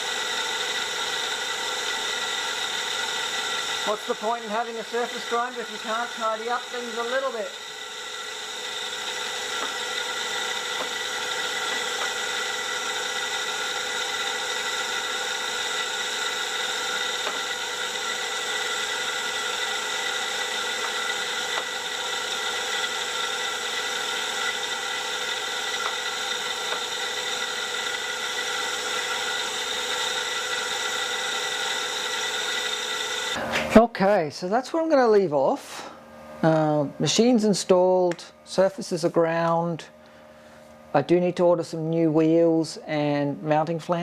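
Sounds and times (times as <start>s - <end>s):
surface grinder whining: 0.0s - 33.9s.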